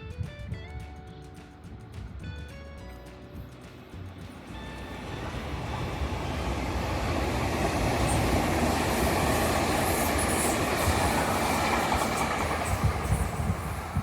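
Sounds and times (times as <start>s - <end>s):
train passing on tracks: 3.9s - 14.0s.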